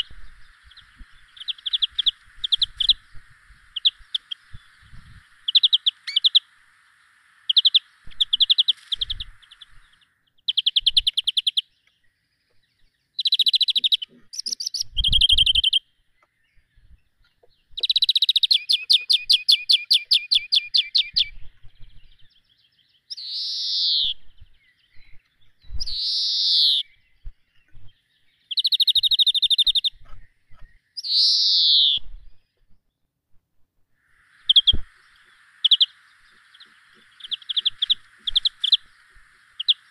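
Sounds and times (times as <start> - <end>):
songbirds trilling and chirping: 0.0 - 33.2, 33.9 - 39.9
bird falling calls: 34.1 - 39.9.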